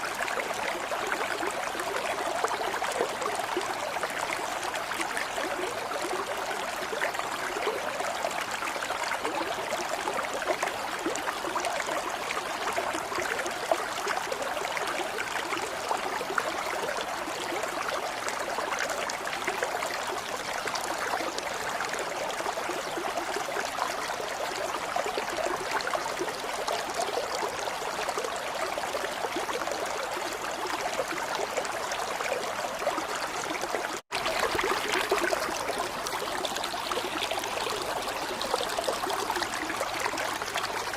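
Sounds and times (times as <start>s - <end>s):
running water: 19.0s - 40.9s.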